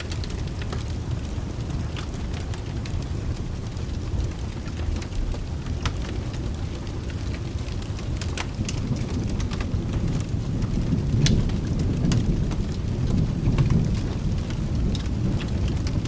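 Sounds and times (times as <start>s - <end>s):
fireplace crackling and popping: 0.0s - 16.0s
rain rumble: 0.0s - 16.0s
distant thunder: 8.4s - 16.0s.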